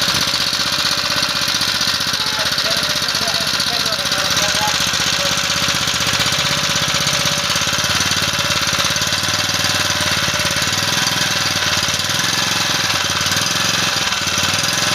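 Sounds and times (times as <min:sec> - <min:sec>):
generator engine running: 0:00.0 - 0:14.9.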